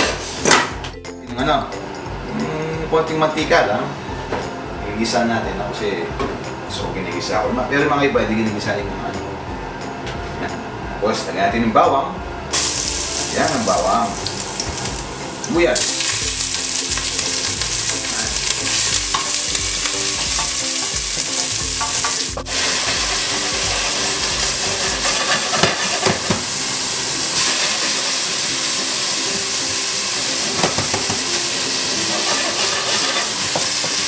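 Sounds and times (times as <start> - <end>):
food sizzling in hot oil: 12.5 - 34.0.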